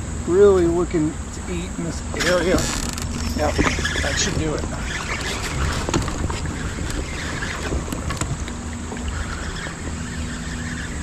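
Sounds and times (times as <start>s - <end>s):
river water lapping against kayak: 0.0s - 11.0s
wind buffeting microphone: 0.0s - 11.0s.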